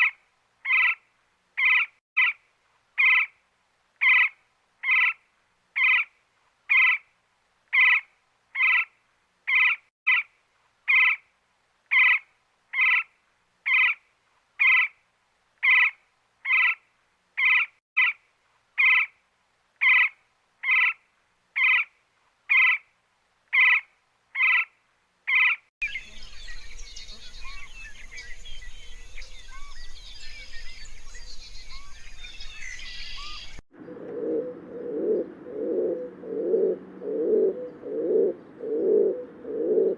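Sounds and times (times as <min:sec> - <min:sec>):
small birds chirping: 0:25.3 - 0:33.6.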